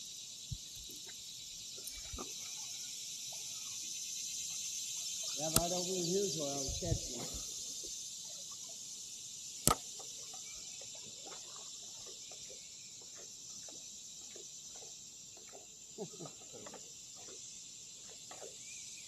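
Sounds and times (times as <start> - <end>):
insects droning: 0.0 - 19.0
water dripping and trickling: 0.4 - 19.0
sharp click: 5.4 - 5.8, 9.6 - 9.8.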